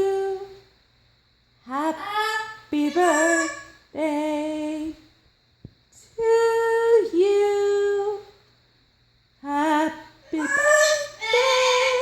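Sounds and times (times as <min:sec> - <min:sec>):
parrot singing in human-like voice: 0:01.7 - 0:03.8, 0:09.8 - 0:12.0.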